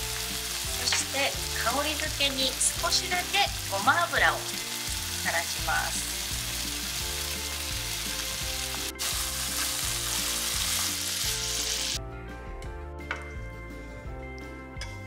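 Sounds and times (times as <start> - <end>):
vegetables sizzling in frying pan: 0.0 - 12.0.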